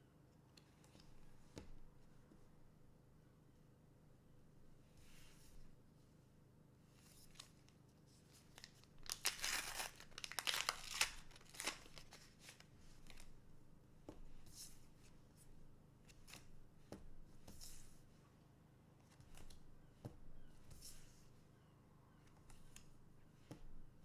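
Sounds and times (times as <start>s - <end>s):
soft rustling and handling: 0.4s - 2.7s, 4.7s - 24.0s
wrapper tearing and crinkling: 8.6s - 12.6s.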